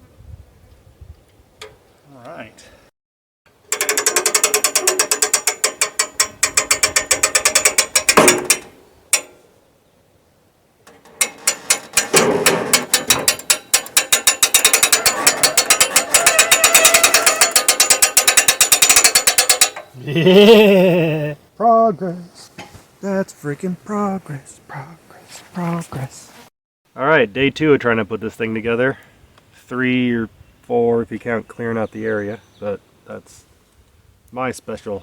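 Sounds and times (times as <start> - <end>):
ratchet wrench clicking: 3.7 - 8.6, 12.8 - 19.9.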